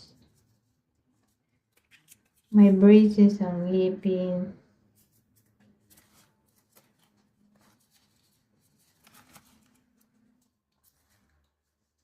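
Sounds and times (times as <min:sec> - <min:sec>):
soft rustles: 0:04.9 - 0:12.0.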